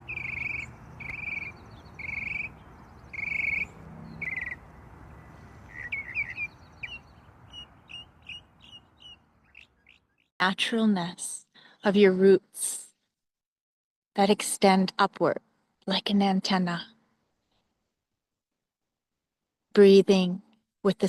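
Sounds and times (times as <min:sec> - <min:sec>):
bird calling with buzzy notes: 0:00.0 - 0:10.3.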